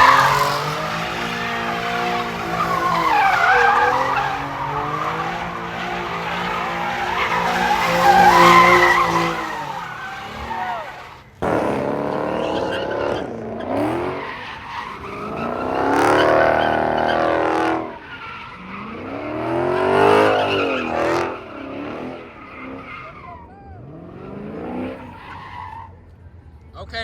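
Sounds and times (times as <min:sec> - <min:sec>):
tyres squealing: 0:00.0 - 0:11.3
car engine revving: 0:11.4 - 0:18.0.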